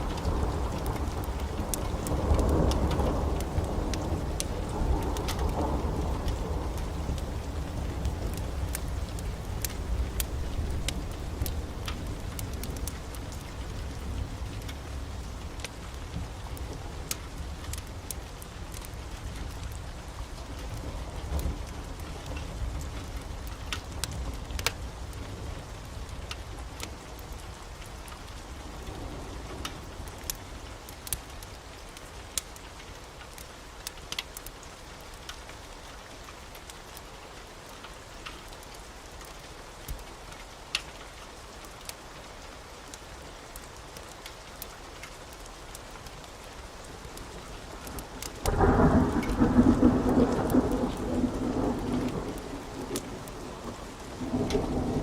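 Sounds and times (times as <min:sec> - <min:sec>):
thunder rumbling: 0:00.0 - 0:17.8, 0:47.0 - 0:55.0
heavy rain: 0:00.0 - 0:55.0
loud thunderclap: 0:48.4 - 0:55.0.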